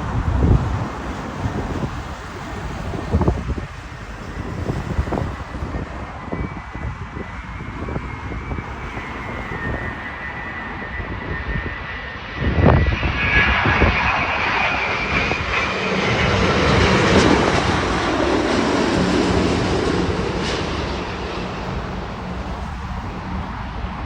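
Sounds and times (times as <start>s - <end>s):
jet engines whining: 0.0s - 24.0s.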